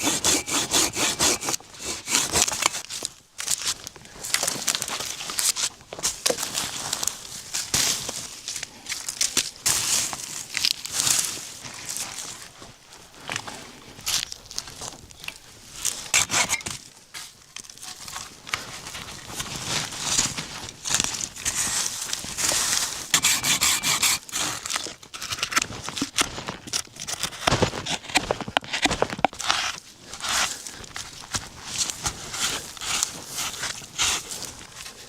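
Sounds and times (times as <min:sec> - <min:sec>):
hand saw cutting wood: 0:00.0 - 0:02.8, 0:16.1 - 0:16.8, 0:23.1 - 0:25.6.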